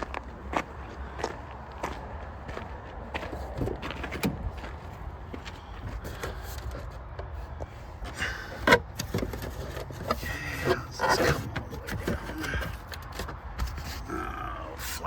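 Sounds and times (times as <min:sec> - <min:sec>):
footsteps: 0:00.0 - 0:08.2.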